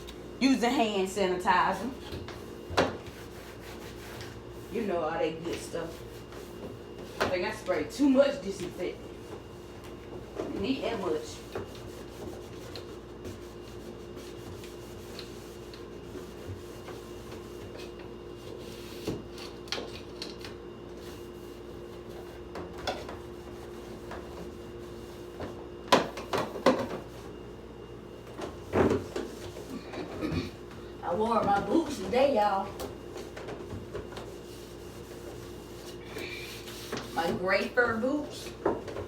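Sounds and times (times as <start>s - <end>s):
knocks and rubbing inside refrigerator: 0.7s - 20.1s, 20.9s - 27.4s, 28.2s - 39.0s.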